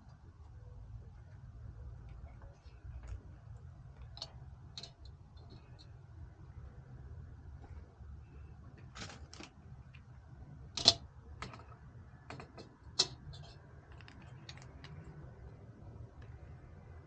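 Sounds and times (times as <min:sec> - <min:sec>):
low steady hum: 0:00.0 - 0:17.0
small hard parts clicking: 0:10.7 - 0:15.6.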